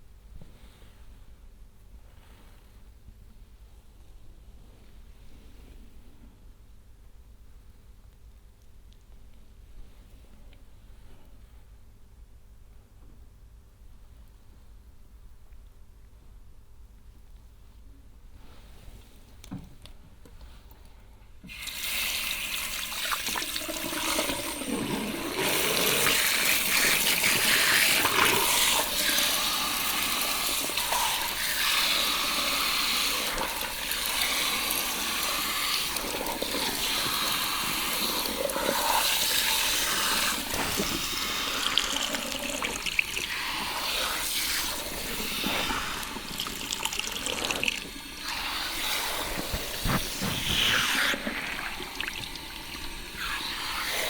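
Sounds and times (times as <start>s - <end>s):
water spraying onto hair: 25.2s - 54.0s.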